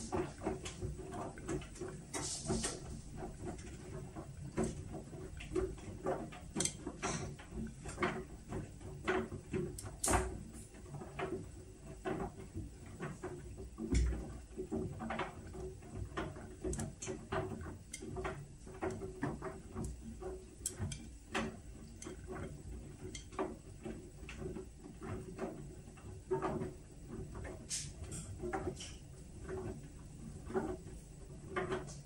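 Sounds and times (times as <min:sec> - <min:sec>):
washing machine humming: 0:00.0 - 0:32.0
light clicks and ticks: 0:06.4 - 0:08.2, 0:15.2 - 0:23.5.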